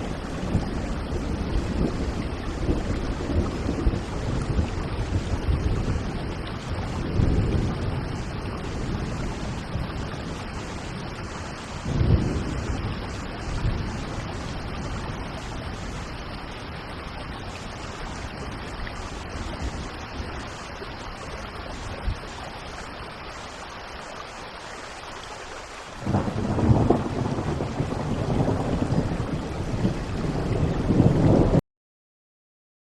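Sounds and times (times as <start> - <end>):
thunderclap: 0.0 - 11.0, 11.8 - 16.2, 26.0 - 31.6
thunder rumbling: 0.0 - 22.3, 26.0 - 31.6
steady rain: 0.0 - 31.6.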